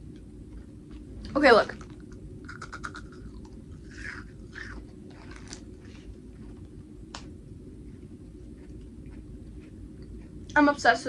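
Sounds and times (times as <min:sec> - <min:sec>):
soft chewing: 0:00.0 - 0:10.8
crunching candy crackles: 0:01.7 - 0:06.0.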